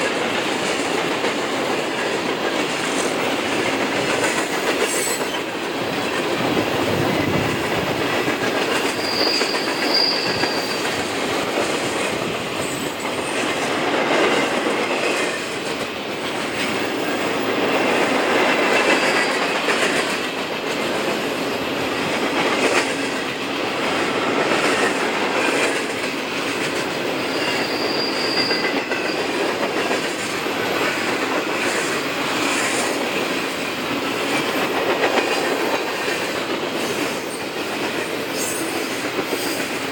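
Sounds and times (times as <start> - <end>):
train wheels clicking over rail joints: 0.0 - 39.9
high wheel squeal: 8.8 - 11.0, 27.2 - 29.3.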